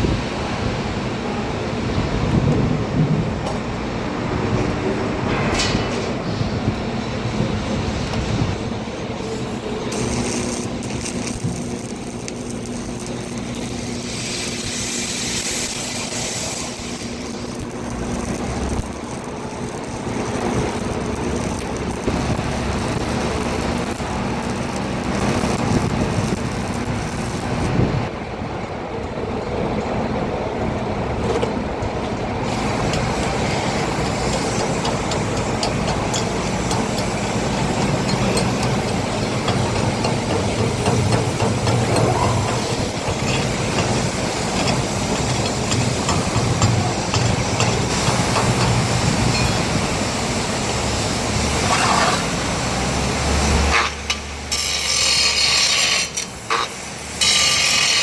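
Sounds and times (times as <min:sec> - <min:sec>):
heavy engine humming: 0:00.0 - 0:54.6
hiss: 0:09.2 - 0:27.6, 0:32.4 - 0:58.0.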